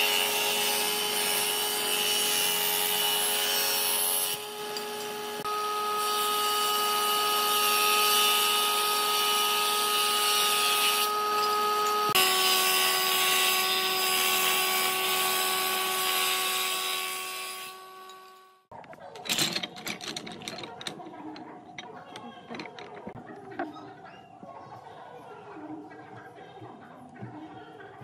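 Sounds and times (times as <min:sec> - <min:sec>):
power tool grinding wood: 0:00.0 - 0:18.4.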